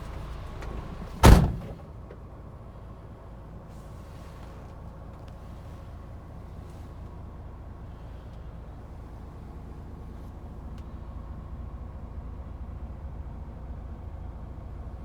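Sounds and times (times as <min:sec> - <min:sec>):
diesel engine idling: 0:00.0 - 0:04.2.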